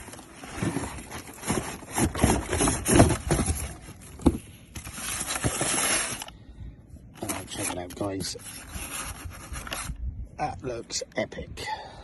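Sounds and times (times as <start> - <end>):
cardboard box rustling and scraping: 0.0 - 6.3, 7.2 - 10.0.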